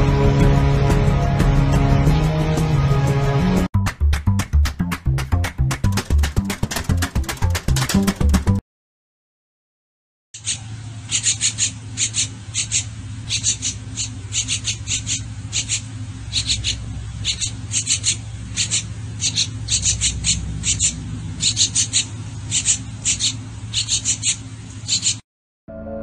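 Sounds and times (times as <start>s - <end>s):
high-pitched bird chirps: 10.4s - 25.2s
low hum: 10.6s - 25.0s.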